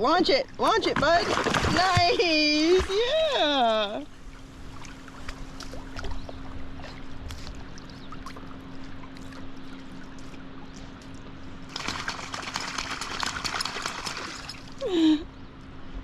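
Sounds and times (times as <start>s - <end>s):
faint steady hum: 0.0s - 16.0s
water lapping around a paddleboard: 0.6s - 14.6s
small splashes: 0.8s - 3.2s, 11.7s - 14.8s
dense splashing of dog swimming: 1.0s - 2.9s, 11.7s - 14.7s.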